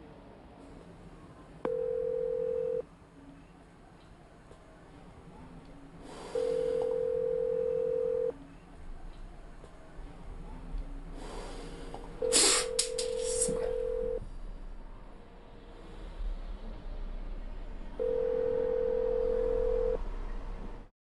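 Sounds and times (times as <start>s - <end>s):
telephone ringback tone: 1.7s - 2.8s, 6.4s - 8.3s, 12.7s - 14.2s, 18.0s - 20.0s.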